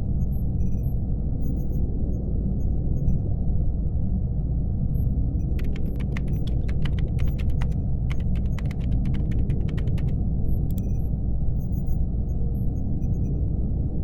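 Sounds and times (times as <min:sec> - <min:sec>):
laptop keyboard typing: 0:05.5 - 0:10.9.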